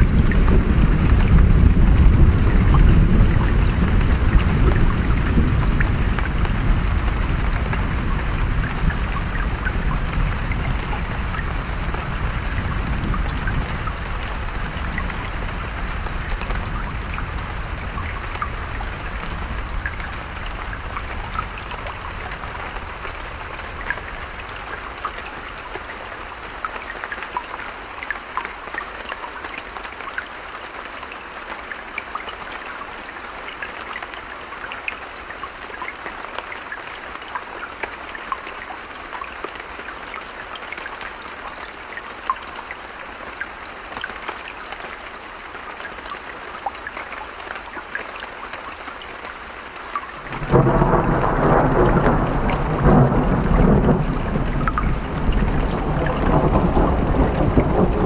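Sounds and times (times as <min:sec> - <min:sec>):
low thunder rumble: 0:00.0 - 0:22.6, 0:50.3 - 0:58.0
steady rain falling: 0:00.0 - 0:58.0
raindrops ticking: 0:45.8 - 0:58.0.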